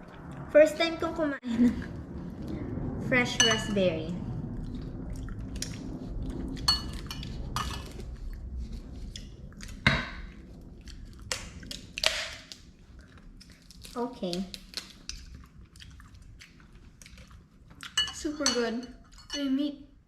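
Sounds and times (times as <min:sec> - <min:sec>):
spoon scraping a bowl: 0:06.6 - 0:08.0.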